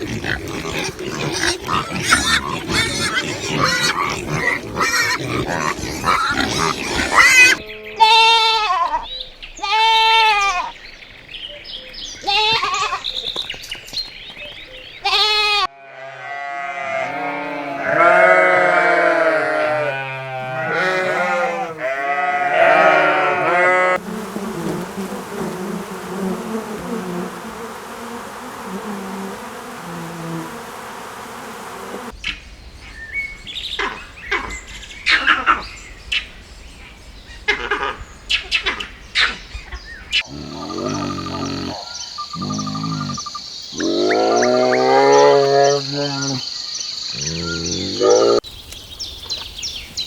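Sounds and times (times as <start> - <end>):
sheep or goats bleating: 0.0 - 10.7, 12.2 - 13.0, 15.0 - 24.0.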